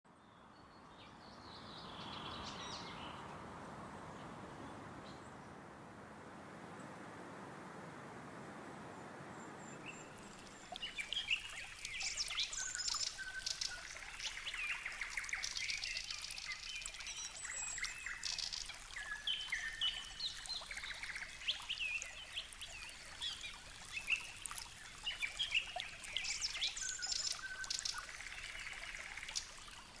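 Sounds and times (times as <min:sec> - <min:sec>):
small birds chirping: 0:09.4 - 0:30.0.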